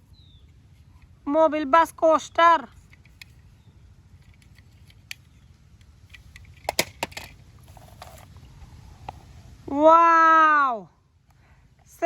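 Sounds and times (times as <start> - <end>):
faint low hum: 0.0 - 12.0
plastic toy vehicles clicking: 2.6 - 3.5, 4.2 - 8.3.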